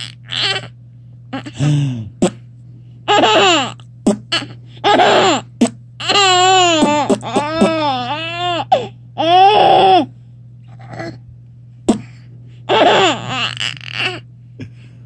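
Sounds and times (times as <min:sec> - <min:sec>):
adult making silly noises: 0:01.4 - 0:02.3
low vocal noise: 0:01.6 - 0:02.2
baby laughing: 0:03.1 - 0:08.6, 0:12.7 - 0:14.2
baby wavering vocalisation: 0:06.0 - 0:10.1, 0:12.7 - 0:14.2.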